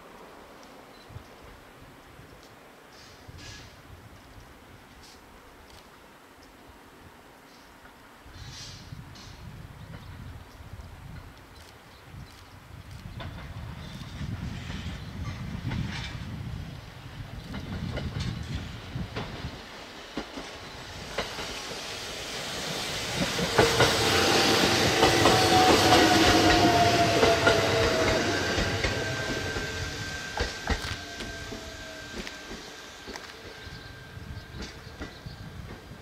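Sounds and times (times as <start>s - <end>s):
train passing: 13.2s - 36.0s.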